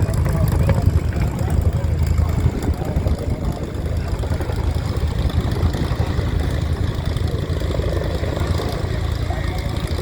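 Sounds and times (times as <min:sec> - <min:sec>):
helicopter rotor rumble: 0:00.0 - 0:10.0.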